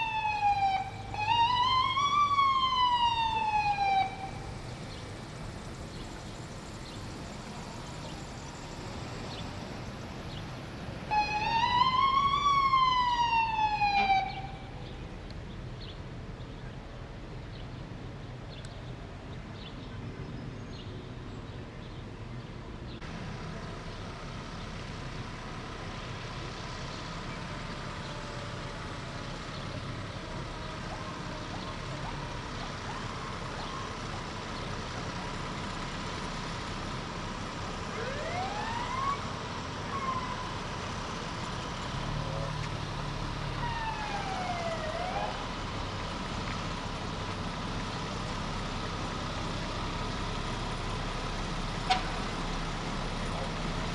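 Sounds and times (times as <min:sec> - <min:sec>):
siren sweeping up and down: 0:00.0 - 0:04.5, 0:11.1 - 0:14.8, 0:37.9 - 0:39.3, 0:43.6 - 0:45.5
street background noise: 0:00.0 - 0:53.9.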